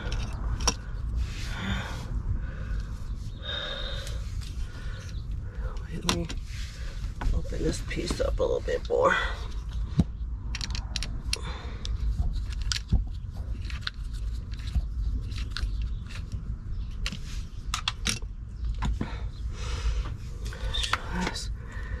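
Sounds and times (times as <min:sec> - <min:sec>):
small hard parts clicking and rattling: 0:00.0 - 0:01.0, 0:09.4 - 0:19.1
steady low rumble: 0:00.0 - 0:22.0.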